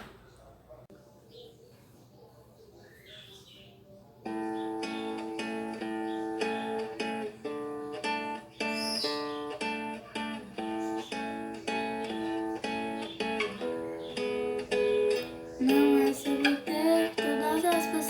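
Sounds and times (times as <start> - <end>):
acoustic guitar strumming chords: 4.3 - 18.0.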